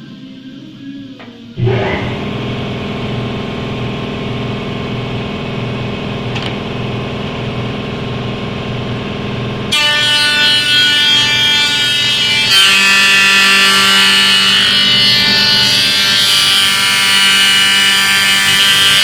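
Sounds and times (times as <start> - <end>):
shrill multi-tone whine: 0.0 - 19.0
machine motor hum: 1.2 - 12.3.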